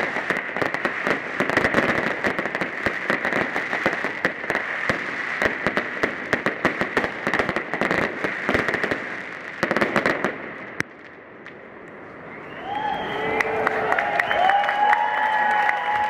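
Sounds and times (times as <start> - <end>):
fireworks crackling bangs and pops: 0.0 - 12.4.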